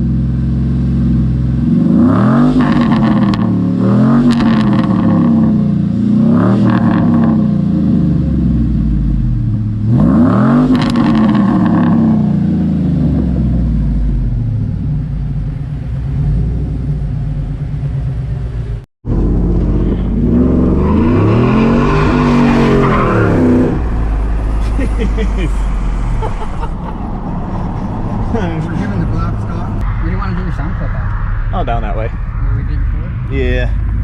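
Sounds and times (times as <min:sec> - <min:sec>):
car exhaust revving and idling: 0:00.0 - 0:34.0.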